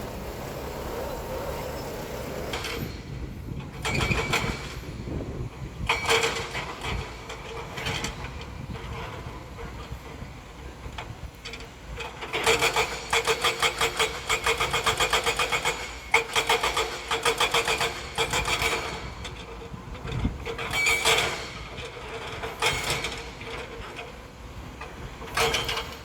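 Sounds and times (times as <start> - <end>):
heavy machine engine hum: 0.0 - 3.6.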